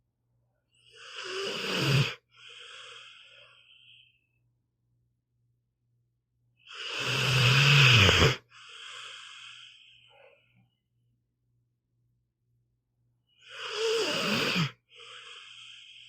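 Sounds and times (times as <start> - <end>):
dog snoring: 1.0 - 3.2, 6.7 - 10.3, 13.5 - 15.7
dog breathing softly: 8.6 - 10.7.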